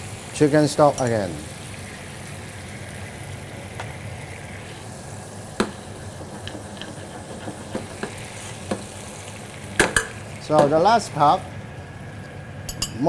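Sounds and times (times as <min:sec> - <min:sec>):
sauce bubbling in a wok: 0:00.0 - 0:13.0.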